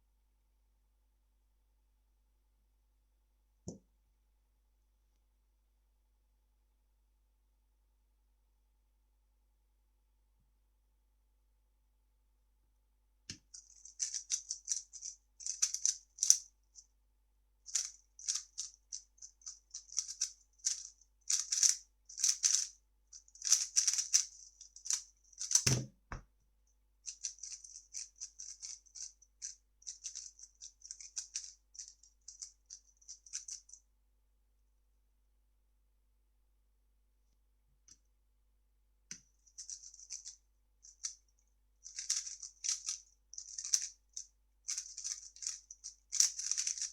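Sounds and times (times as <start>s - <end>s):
puzzle cube plastic clicking: 13.3s - 16.4s, 19.8s - 22.7s, 23.4s - 25.9s, 46.2s - 46.9s.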